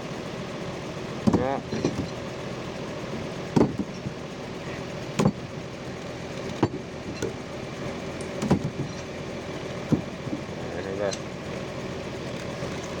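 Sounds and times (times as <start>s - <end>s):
truck engine running: 0.0s - 13.0s
sharp knocks: 1.2s - 2.1s, 3.6s - 4.2s, 5.2s - 5.4s, 8.4s - 9.0s, 9.9s - 10.5s.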